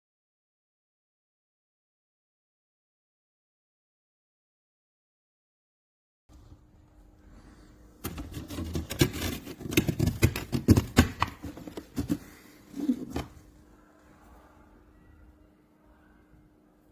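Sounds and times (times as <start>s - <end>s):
handling clicks taps and rustles: 8.0s - 13.4s.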